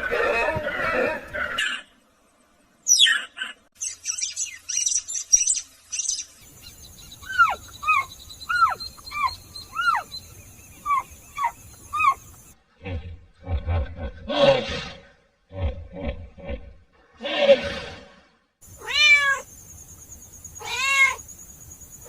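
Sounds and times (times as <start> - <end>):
high bird twittering: 2.9 - 12.5
short arching bird calls: 2.9 - 12.6.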